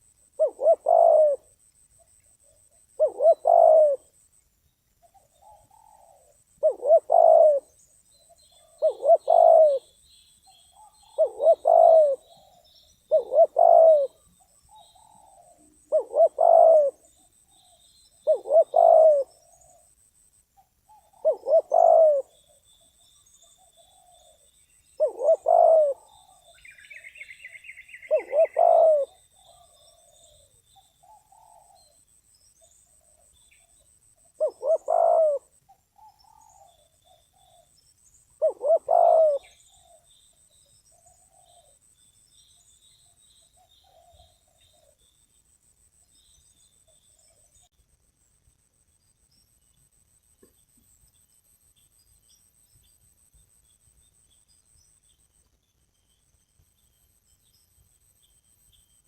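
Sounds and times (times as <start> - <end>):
small birds chirping: 0.0 - 59.0
dove cooing: 0.4 - 1.6, 2.4 - 4.2, 5.0 - 19.8, 20.9 - 22.6, 25.0 - 32.0, 34.2 - 37.8, 38.4 - 40.1, 40.9 - 41.8, 43.6 - 45.0.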